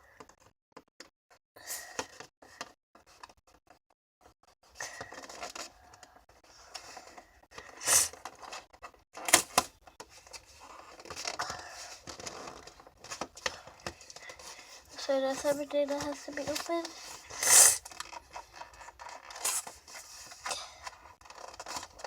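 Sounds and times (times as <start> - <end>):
packaging rustling and crinkling: 4.8 - 22.0.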